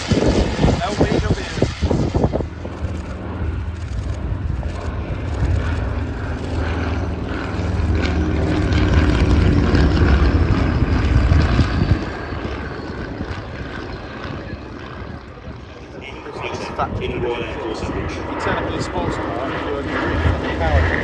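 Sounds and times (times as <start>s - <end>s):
propeller aircraft engine drone: 0.0s - 21.0s.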